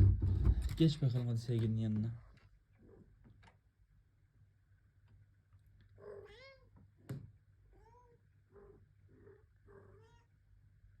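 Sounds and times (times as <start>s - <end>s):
cat meowing: 6.0s - 6.7s, 7.7s - 10.3s.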